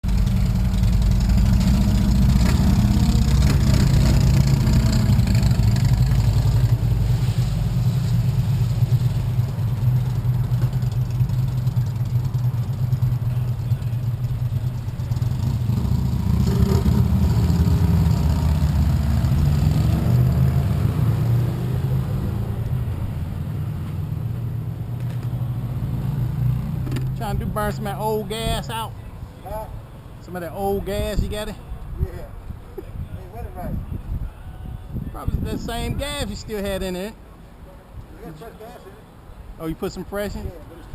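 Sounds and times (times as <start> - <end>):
motorcycle engine idling: 0.1 - 1.6, 9.4 - 15.7.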